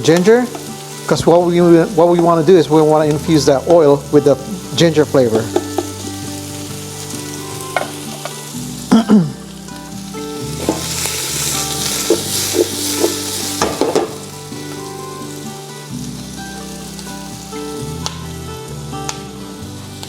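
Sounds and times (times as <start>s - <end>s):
onion sizzling in hot oil: 0.0s - 20.0s
utensil scraping a pan: 10.5s - 14.3s.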